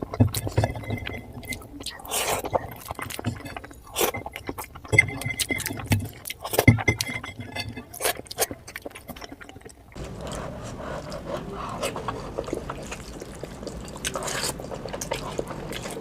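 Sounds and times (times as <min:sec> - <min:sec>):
wet chewing smacks: 0:08.0 - 0:16.0.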